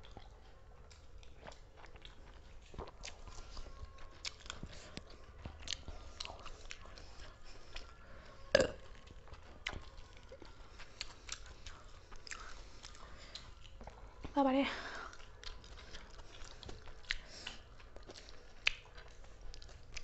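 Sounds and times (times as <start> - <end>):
people chewing and crunching food: 0.0 - 20.0.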